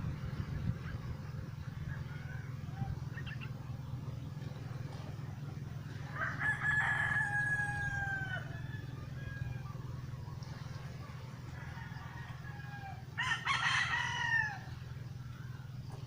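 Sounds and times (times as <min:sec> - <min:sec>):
steady low hum: 0:00.0 - 0:16.0
rooster crowing: 0:06.1 - 0:09.9, 0:11.5 - 0:14.8.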